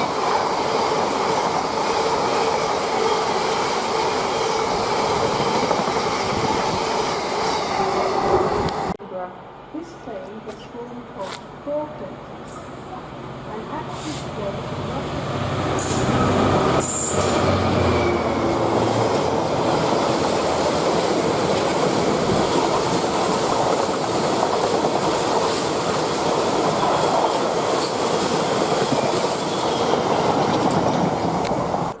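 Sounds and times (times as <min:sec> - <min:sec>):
train wheels rushing on rails: 0:00.0 - 0:09.0, 0:13.8 - 0:32.0
train engine: 0:00.0 - 0:32.0.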